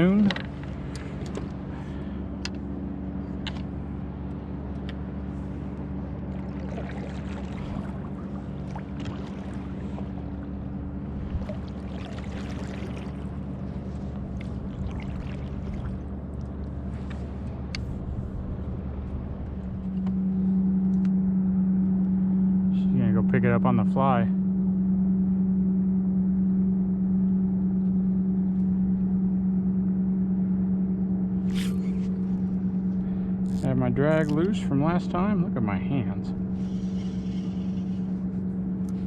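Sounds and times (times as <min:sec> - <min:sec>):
boat motor drone: 0:00.0 - 0:39.0
faint water noise: 0:05.3 - 0:18.4.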